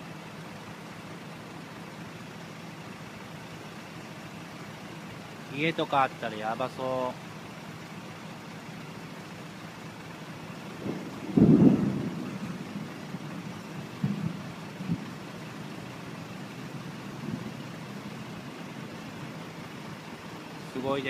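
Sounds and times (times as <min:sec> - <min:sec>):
steady outdoor noise: 0:00.0 - 0:21.0
loud low rumble: 0:10.7 - 0:15.2
soft low thumps: 0:14.0 - 0:15.1.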